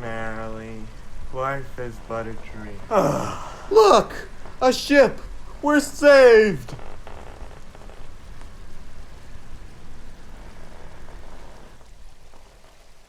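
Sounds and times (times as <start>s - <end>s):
water splashing around a boat: 6.8s - 13.0s.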